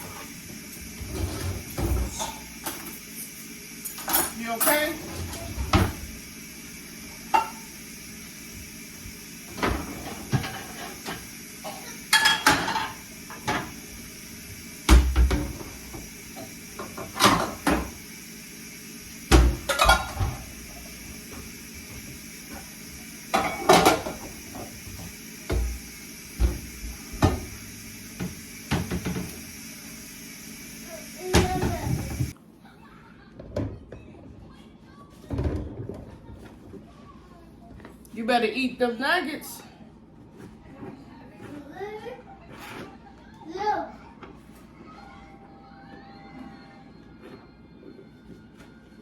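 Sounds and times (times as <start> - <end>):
dishes and cutlery clinking: 10.2 - 13.8, 19.6 - 20.3.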